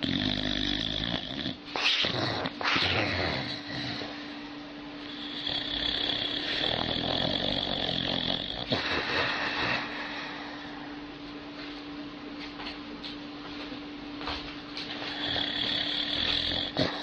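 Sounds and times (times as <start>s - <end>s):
dog snoring: 0.0s - 4.4s, 5.0s - 10.7s, 14.8s - 17.0s
steady hum: 0.0s - 17.0s.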